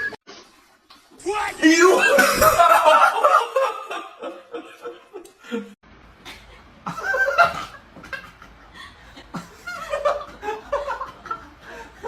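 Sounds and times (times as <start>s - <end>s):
people laughing: 2.0s - 5.8s, 6.9s - 12.0s.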